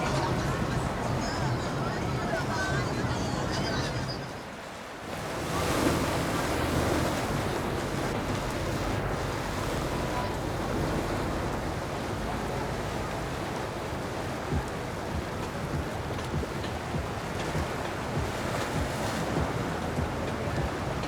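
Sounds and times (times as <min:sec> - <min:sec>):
motorboat engine rumble: 0:00.0 - 0:21.0
rushing water: 0:00.0 - 0:21.0
wind buffeting microphone: 0:05.1 - 0:21.0.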